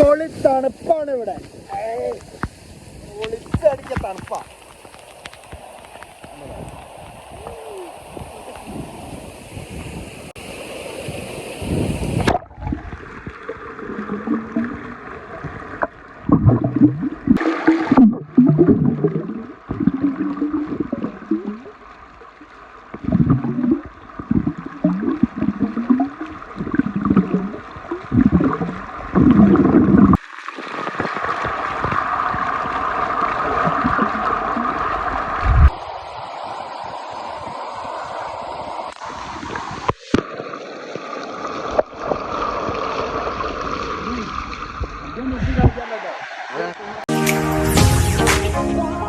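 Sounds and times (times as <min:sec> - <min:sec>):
stream and waterfall rushing: 0:00.0 - 0:12.4, 0:30.6 - 0:40.2, 0:45.8 - 0:49.0
water gurgling and splashing: 0:00.0 - 0:47.2.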